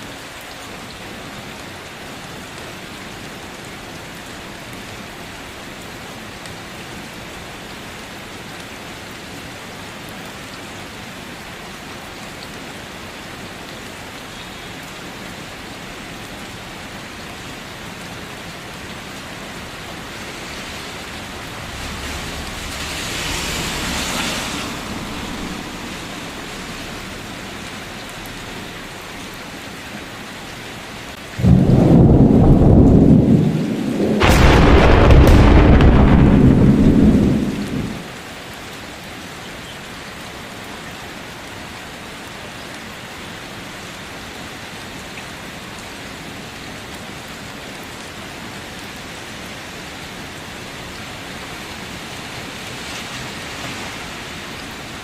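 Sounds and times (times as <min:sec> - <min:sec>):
steady rain: 0:00.0 - 0:55.0
thunder crash: 0:20.2 - 0:27.4, 0:31.4 - 0:38.1.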